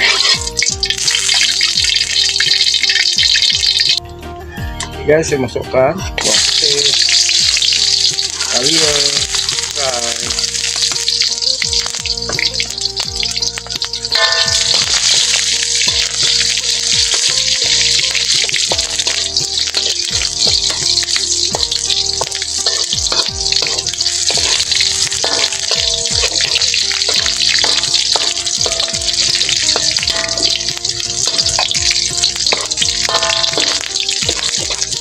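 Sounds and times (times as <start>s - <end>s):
spatula scraping a wok: 0.0s - 3.9s, 10.4s - 35.0s
aromatics sizzling in hot oil: 0.0s - 4.0s, 6.2s - 35.0s
background music: 0.0s - 35.0s.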